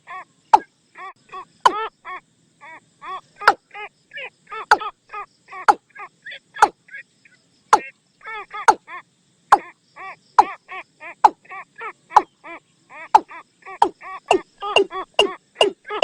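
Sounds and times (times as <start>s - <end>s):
bird lure call hollow notes: 13.2s - 16.0s.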